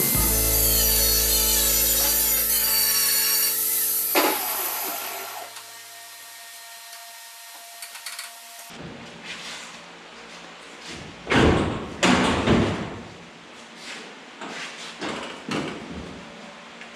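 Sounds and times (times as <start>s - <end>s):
power grinder on sheet metal: 0.0s - 8.6s.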